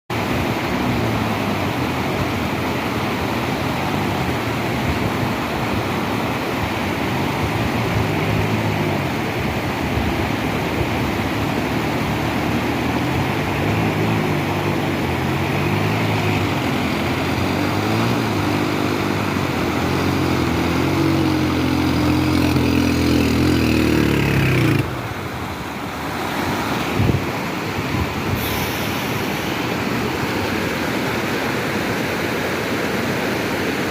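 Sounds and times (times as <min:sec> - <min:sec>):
waterfall rushing: 0:00.1 - 0:33.9
vehicle engine running: 0:00.2 - 0:26.8.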